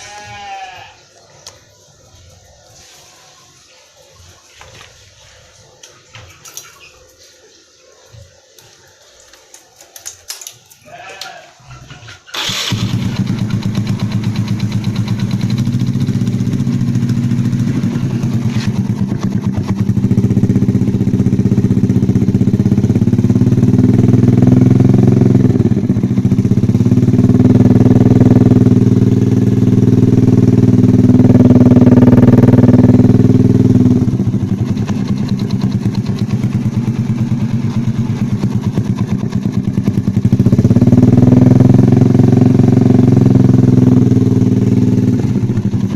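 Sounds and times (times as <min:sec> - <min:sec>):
motorcycle engine idling and revving: 0:11.8 - 0:45.9.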